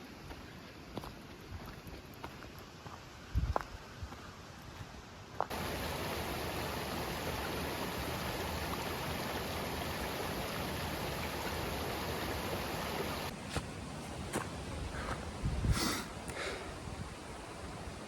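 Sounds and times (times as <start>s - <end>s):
running water rushing: 5.5s - 13.4s.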